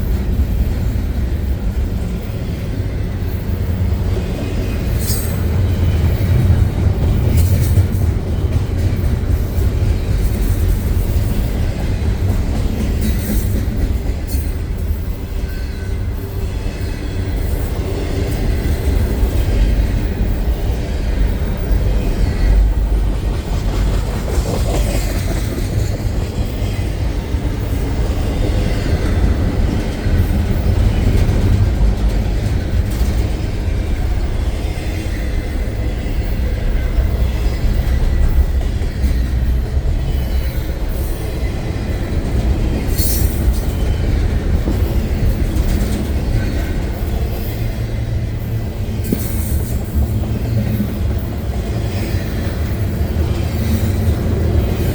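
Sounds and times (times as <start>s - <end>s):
freight train wheels rumbling: 0.0s - 54.9s
wheels clacking over rail joints: 0.0s - 54.9s.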